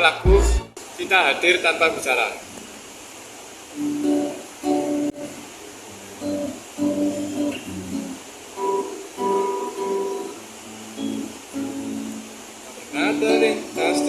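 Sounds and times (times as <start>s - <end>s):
acoustic guitar strumming chords: 0.3s - 0.8s, 3.8s - 5.4s, 6.0s - 14.0s.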